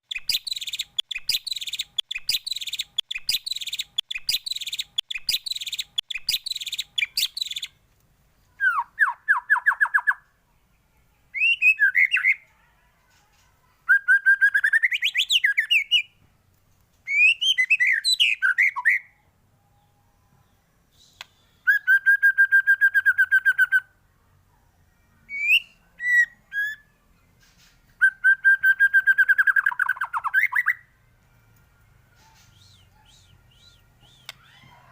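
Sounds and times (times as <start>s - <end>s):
bird singing: 0.0s - 7.8s, 24.9s - 27.0s, 28.0s - 30.9s, 32.2s - 34.9s.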